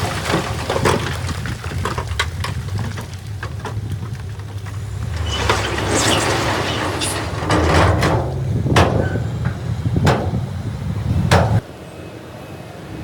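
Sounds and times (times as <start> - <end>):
diesel engine running low: 0.0 - 12.7
sharp knocks: 4.5 - 11.7.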